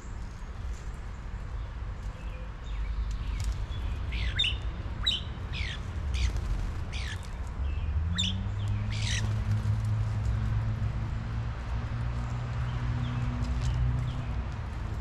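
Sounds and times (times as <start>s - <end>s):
songbird whistling: 4.1s - 5.8s.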